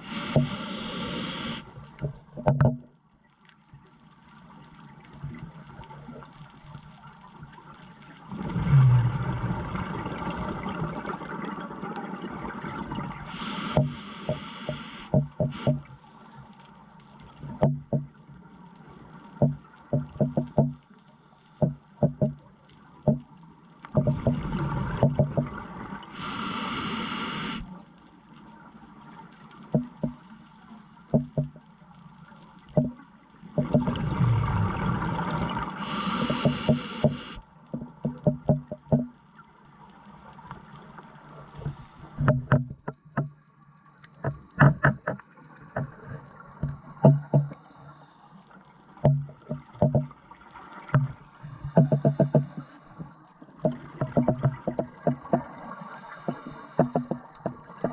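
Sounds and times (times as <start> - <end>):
diver breathing through regulator: 0.0 - 1.7, 13.3 - 15.8, 26.1 - 27.6, 35.8 - 37.4, 51.3 - 53.0, 55.6 - 57.2.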